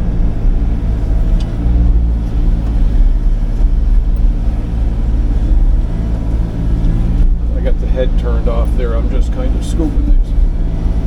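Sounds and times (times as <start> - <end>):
excavator diesel engine droning: 0.0 - 11.0.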